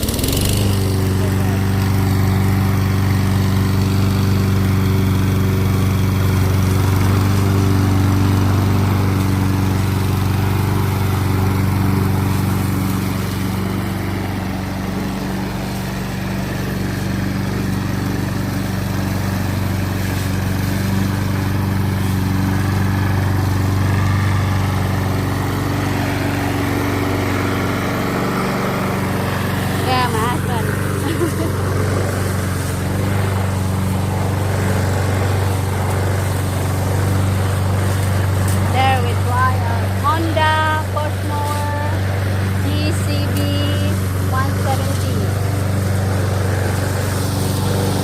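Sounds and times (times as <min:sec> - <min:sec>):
lawn mower engine running: 0:00.0 - 0:48.0.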